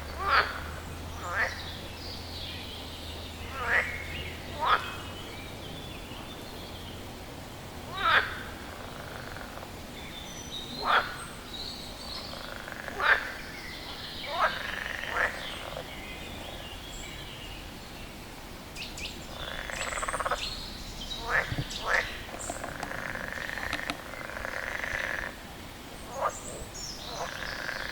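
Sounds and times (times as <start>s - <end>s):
frog croaking: 0.1s - 1.8s, 3.4s - 5.2s, 7.9s - 9.7s, 10.7s - 11.2s, 12.1s - 16.6s, 19.2s - 25.5s, 26.1s - 27.9s.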